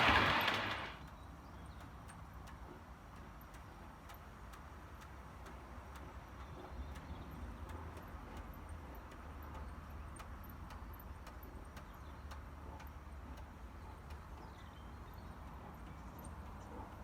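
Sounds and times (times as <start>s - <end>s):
model train low rumble: 0.0s - 1.1s
model train wheels clicking: 0.0s - 14.7s.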